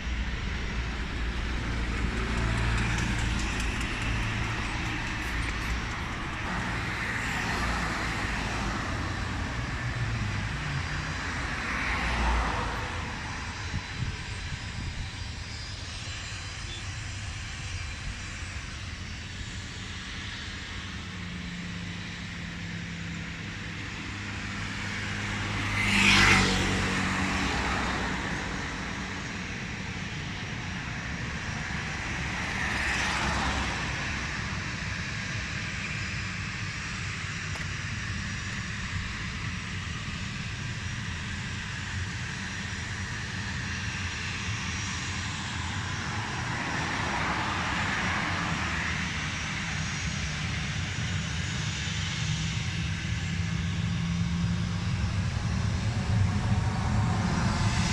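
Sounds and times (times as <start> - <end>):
vehicle passing: 0.0 - 13.8, 24.2 - 29.5
aircraft engines running: 0.0 - 57.9.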